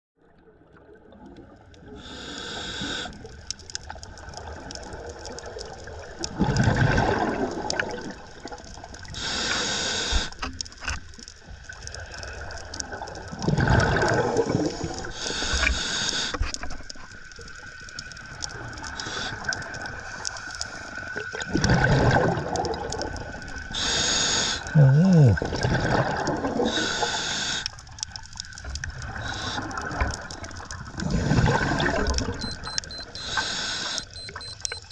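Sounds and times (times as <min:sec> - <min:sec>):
regulator air hiss: 0:02.0 - 0:03.2, 0:09.2 - 0:10.4, 0:15.2 - 0:16.4, 0:23.8 - 0:24.7, 0:26.7 - 0:27.8, 0:33.1 - 0:34.1
exhaust bubbles rushing: 0:06.4 - 0:08.2, 0:13.4 - 0:14.8, 0:21.5 - 0:23.2, 0:24.8 - 0:26.7, 0:29.8 - 0:32.5.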